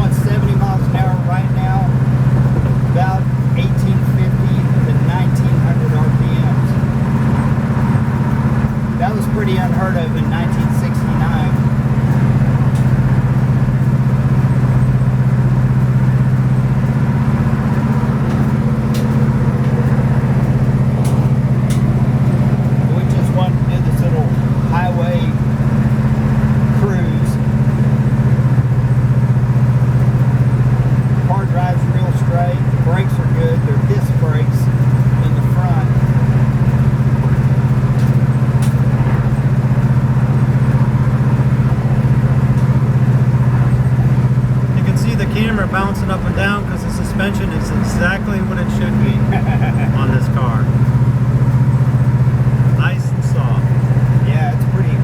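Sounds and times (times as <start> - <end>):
car engine low drone: 0.0 - 55.0
road noise: 0.0 - 55.0.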